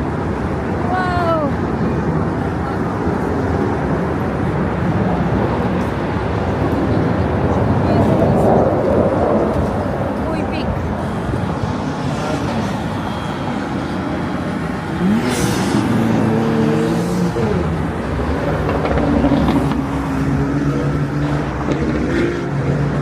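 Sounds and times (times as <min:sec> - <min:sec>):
outdoor city noise: 0:00.0 - 0:23.0
vehicle engine passing: 0:07.7 - 0:23.0.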